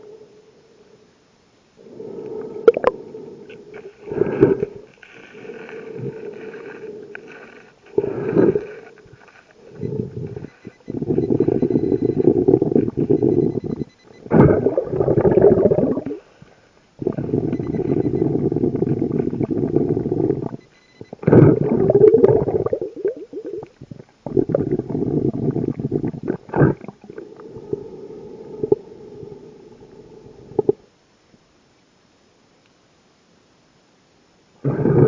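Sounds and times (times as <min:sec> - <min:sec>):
bubbling exhalations underwater: 0:02.6 - 0:03.0, 0:04.0 - 0:16.3, 0:17.0 - 0:27.9.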